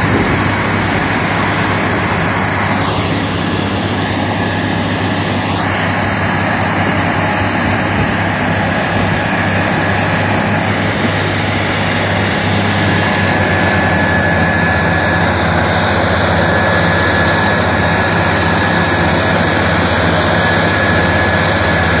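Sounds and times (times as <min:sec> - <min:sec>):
faint steady whine: 0:00.0 - 0:22.0
grinding roar: 0:00.0 - 0:22.0
milling machine engine hum: 0:00.0 - 0:22.0.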